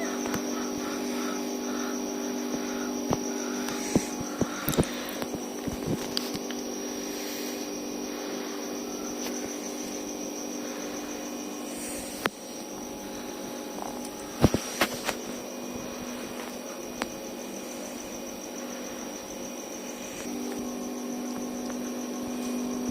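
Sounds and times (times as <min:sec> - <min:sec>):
electrical hum with high whine: 0:00.0 - 0:22.9
sharp clicks: 0:02.5 - 0:06.6.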